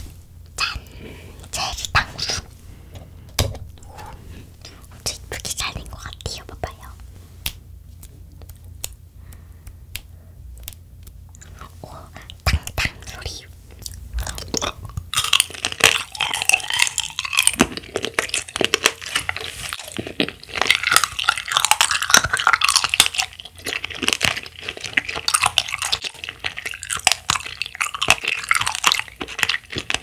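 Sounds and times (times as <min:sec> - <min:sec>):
wet chewing sounds: 0:07.9 - 0:30.0
crisp crunching: 0:14.2 - 0:30.0.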